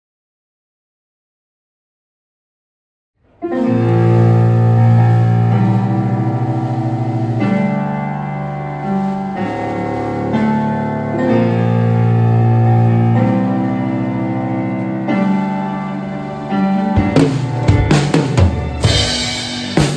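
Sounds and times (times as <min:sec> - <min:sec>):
sustained keyboard chords: 0:03.2 - 0:19.9
deep bass: 0:03.7 - 0:08.3, 0:10.0 - 0:19.9.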